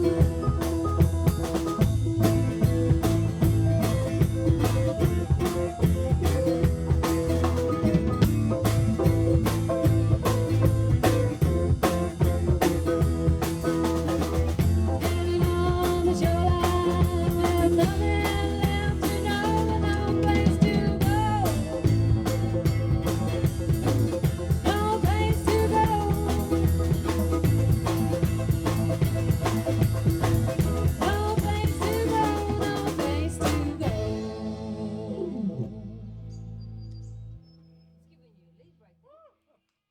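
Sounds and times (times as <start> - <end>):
live band playing: 0.0 - 36.8
person singing: 31.0 - 36.3.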